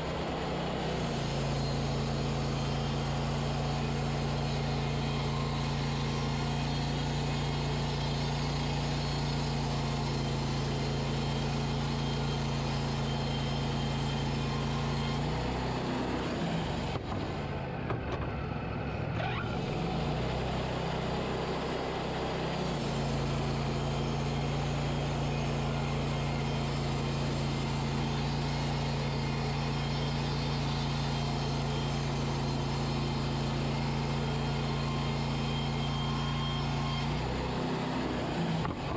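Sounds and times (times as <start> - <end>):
band sawmill running: 0.0 - 18.3, 19.4 - 38.9.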